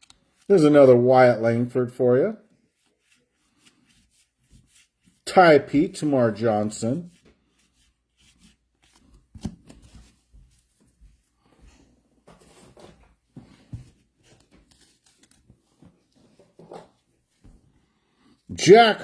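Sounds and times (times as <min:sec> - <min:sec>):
trading cards rustling and flicking: 0:00.0 - 0:01.0, 0:02.6 - 0:11.5, 0:12.3 - 0:17.4.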